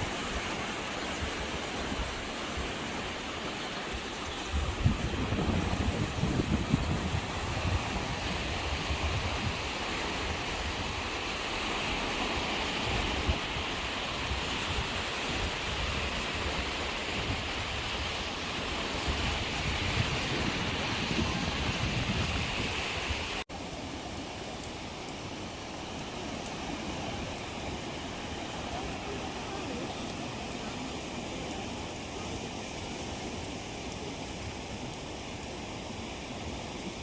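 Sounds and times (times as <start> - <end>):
wind gusting on microphone: 0.0 - 24.1
sea surf washing: 0.0 - 37.0.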